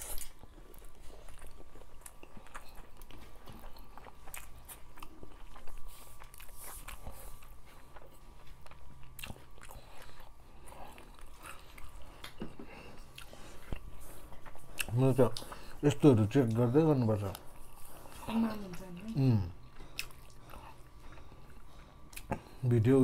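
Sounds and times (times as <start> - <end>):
wet chewing and mouth clicks: 0.0 - 22.6.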